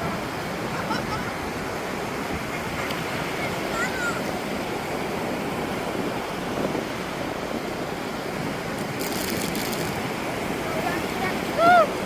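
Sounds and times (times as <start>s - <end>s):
ocean surf: 0.0s - 12.0s
wind on microphone: 4.5s - 12.0s
high rustle: 8.8s - 10.1s.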